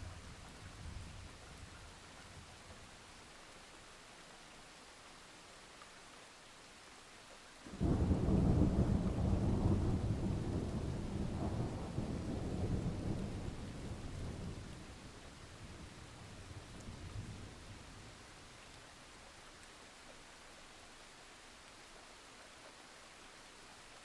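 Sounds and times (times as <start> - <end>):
steady rain: 0.0 - 24.0
thunder rumbling: 7.7 - 14.7.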